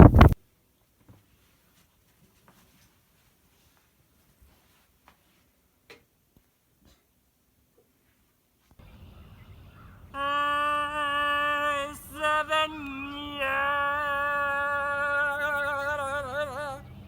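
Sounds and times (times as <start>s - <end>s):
person singing long notes: 10.1s - 17.0s.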